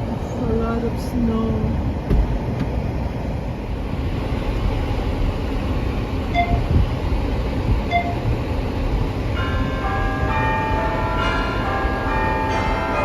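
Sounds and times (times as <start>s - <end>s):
car rumbling on snowy road: 0.0s - 13.0s
short high beeps: 6.4s - 6.6s, 7.9s - 8.2s.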